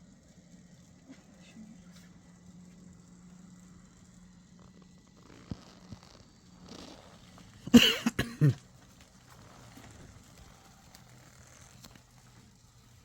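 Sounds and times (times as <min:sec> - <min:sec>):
person coughing: 0:07.7 - 0:08.6.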